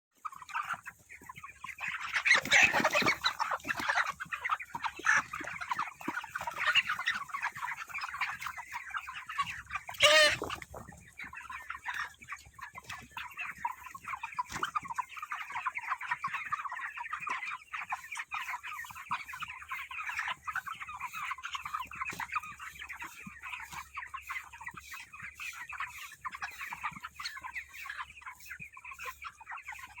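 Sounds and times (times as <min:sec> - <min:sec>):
chickens clucking: 0:00.2 - 0:30.0
loud chicken call: 0:09.8 - 0:10.6.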